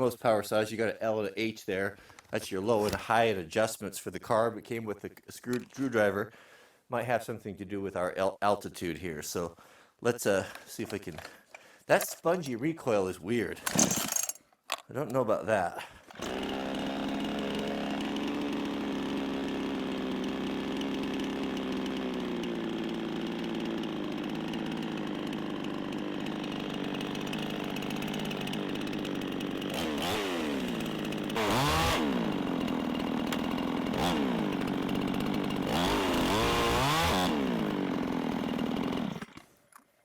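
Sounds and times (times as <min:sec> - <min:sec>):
chainsaw idling and revving: 0:16.1 - 0:39.4.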